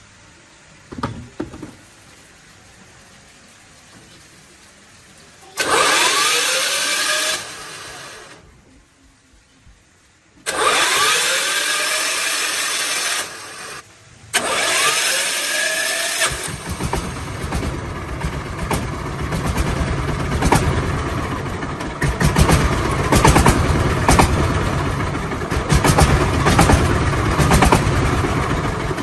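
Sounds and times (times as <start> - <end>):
tractor engine cranking whine: 5.6 - 8.5, 10.4 - 29.0
tractor engine running: 5.6 - 8.5, 10.4 - 29.0.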